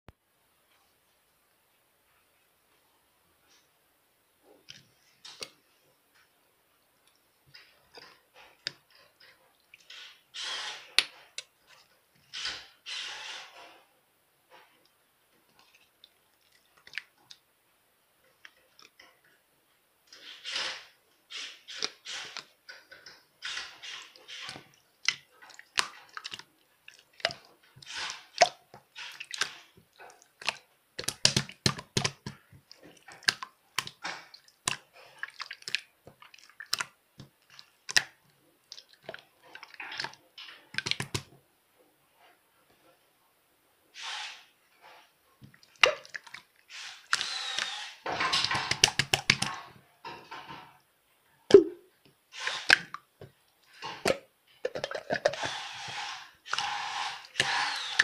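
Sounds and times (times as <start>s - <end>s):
slime squishing by hand: 20.2s - 41.4s, 44.3s - 49.8s, 51.5s - 58.0s
sticky slime pops and clicks: 30.4s - 32.4s, 48.5s - 49.6s.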